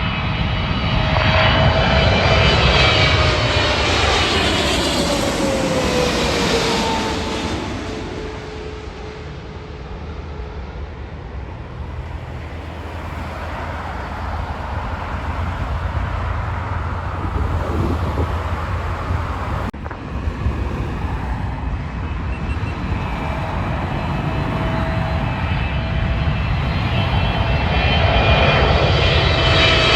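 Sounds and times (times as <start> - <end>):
jet engine rumble: 0.0 - 29.9
jet engine whine: 0.0 - 29.9.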